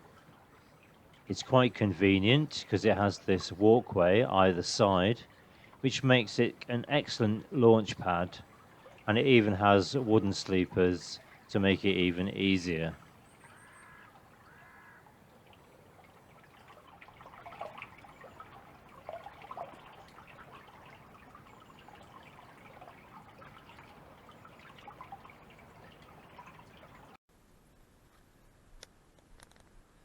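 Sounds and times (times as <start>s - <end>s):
small water splashes: 0.0s - 27.2s
water dripping and trickling: 0.0s - 27.2s
bird calling: 4.2s - 27.2s.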